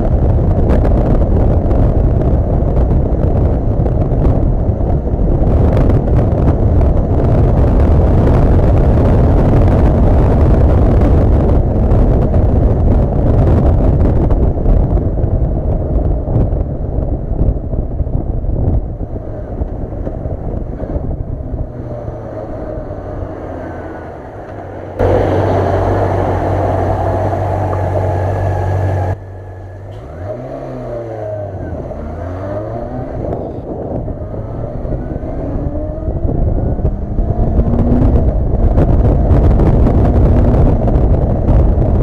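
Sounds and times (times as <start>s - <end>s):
wind on microphone: 0.0s - 42.0s
motorcycle engine running: 24.5s - 29.9s.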